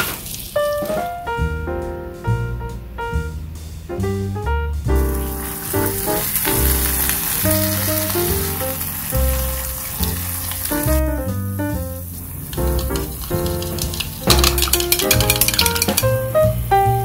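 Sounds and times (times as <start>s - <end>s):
piano background music: 0.0s - 17.0s
food sizzling in frying pan: 5.1s - 11.0s, 12.1s - 16.1s.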